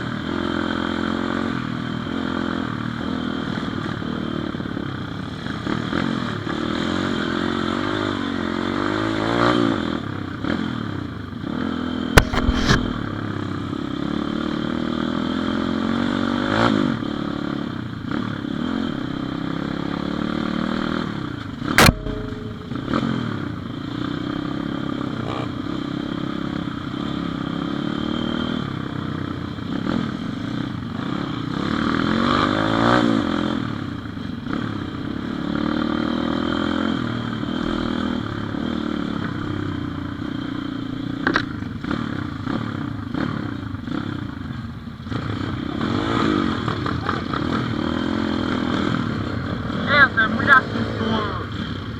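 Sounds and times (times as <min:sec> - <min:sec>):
sharp knocks: 0:12.2 - 0:13.2, 0:21.4 - 0:23.7.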